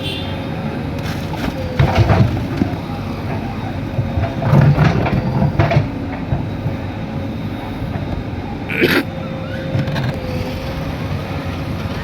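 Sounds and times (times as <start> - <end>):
diesel engine running: 0.0 - 12.0
clanking and knocks: 1.1 - 6.8.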